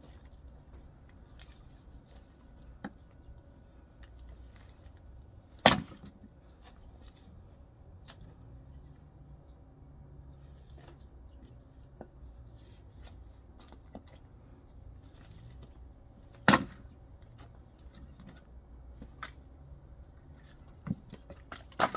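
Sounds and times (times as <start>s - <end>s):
axe striking log: 5.6s - 6.2s, 16.4s - 16.9s.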